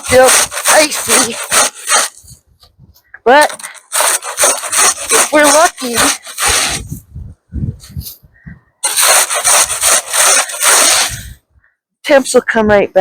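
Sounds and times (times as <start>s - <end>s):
snow shovel scraping snow: 0.0s - 2.4s, 3.3s - 7.0s, 8.8s - 11.4s.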